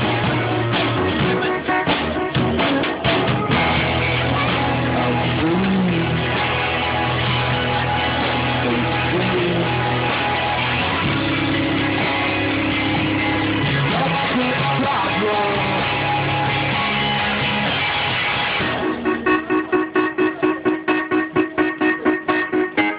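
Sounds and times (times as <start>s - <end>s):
guitar: 0.0s - 22.9s
rock band playing: 0.0s - 22.9s
person singing: 4.3s - 6.4s, 8.3s - 10.6s, 13.7s - 17.1s.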